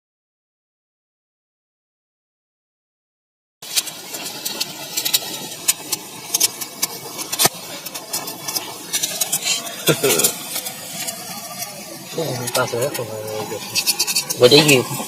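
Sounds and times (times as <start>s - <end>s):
firework crackling: 3.6s - 15.0s
fizzing hiss: 3.6s - 15.0s
loud firework crack: 3.6s - 15.0s.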